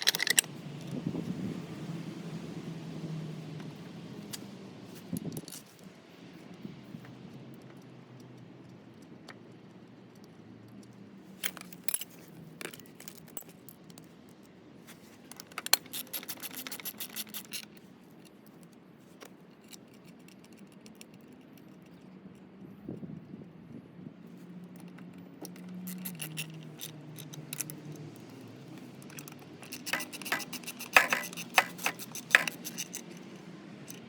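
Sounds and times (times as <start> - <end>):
light metallic clinking and rattling: 0.0 - 1.0, 11.4 - 14.1, 15.1 - 18.8, 24.7 - 34.0.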